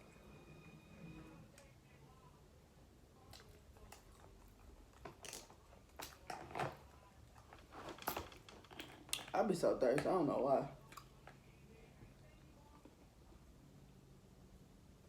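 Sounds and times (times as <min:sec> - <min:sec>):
food being chewed: 0:03.2 - 0:09.4, 0:10.8 - 0:11.6.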